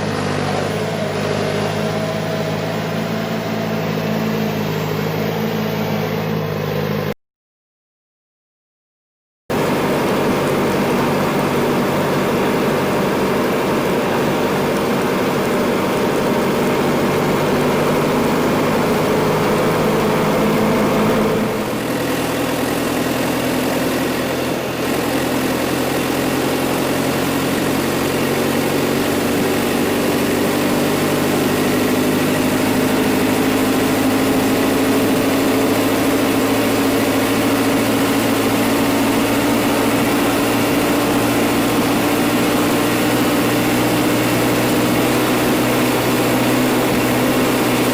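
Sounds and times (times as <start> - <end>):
backhoe engine running: 0.0 - 7.2, 9.5 - 47.9.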